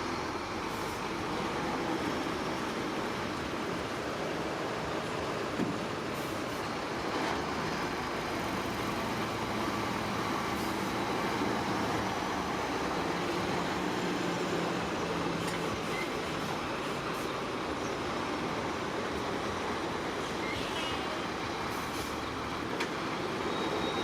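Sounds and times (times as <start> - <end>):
diesel machinery engine drone: 0.0 - 24.0.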